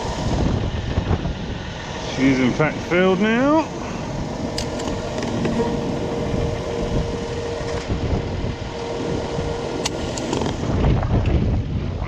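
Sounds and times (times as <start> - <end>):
fuel pump humming: 0.0 - 11.2
wind buffeting microphone: 0.0 - 12.0
sharp click: 4.6 - 5.6, 9.8 - 10.6.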